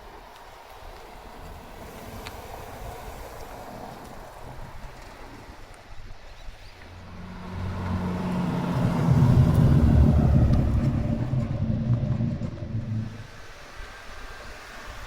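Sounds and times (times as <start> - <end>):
car engine driving past: 6.6 - 13.4.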